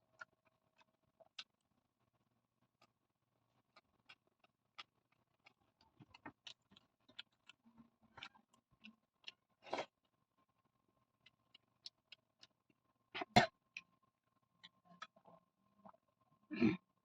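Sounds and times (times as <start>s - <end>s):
person chewing rice: 0.0s - 10.2s, 11.0s - 13.9s.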